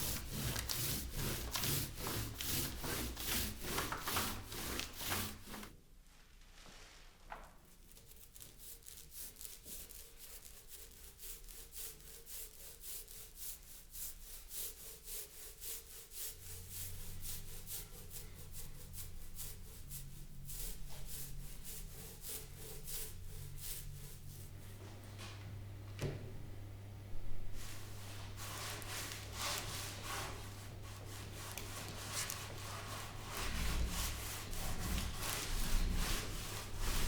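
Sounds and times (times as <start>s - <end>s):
hand scraping wooden cabinet: 0.0s - 5.7s, 27.4s - 37.0s
low steady hum: 16.4s - 37.0s.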